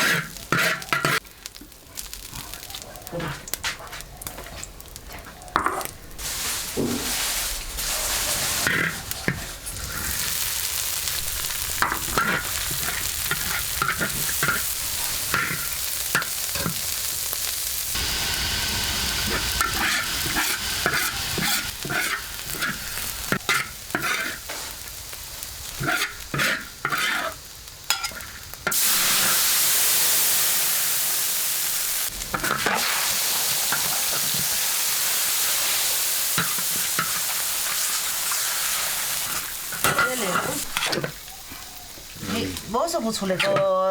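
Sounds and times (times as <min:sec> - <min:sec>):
spatula scraping a pan: 0:00.0 - 0:01.2, 0:06.7 - 0:10.4, 0:11.8 - 0:16.8, 0:19.2 - 0:24.8, 0:25.7 - 0:28.8, 0:32.3 - 0:33.0, 0:36.4 - 0:37.9, 0:39.2 - 0:41.2
food sizzling in a pan: 0:00.0 - 0:43.9.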